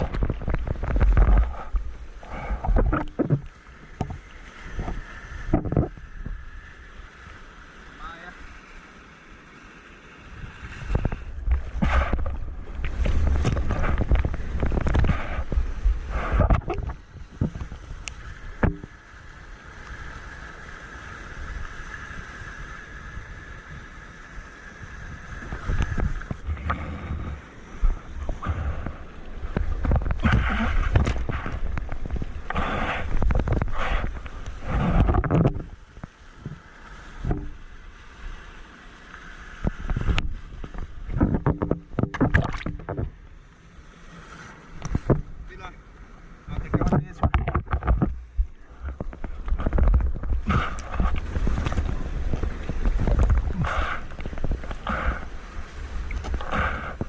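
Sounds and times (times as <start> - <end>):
wind buffeting microphone: 0.0 - 6.4, 10.4 - 18.9, 25.0 - 36.6, 46.4 - 57.0
water splashing: 0.0 - 23.9, 25.1 - 57.0.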